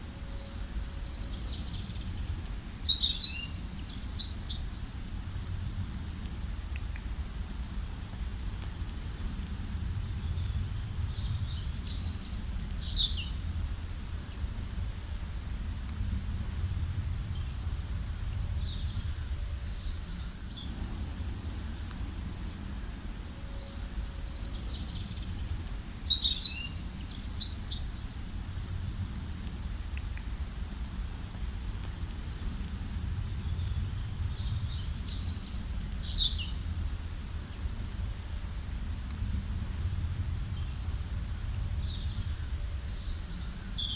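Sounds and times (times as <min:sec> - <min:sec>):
steady low rumble: 0:00.0 - 0:43.9.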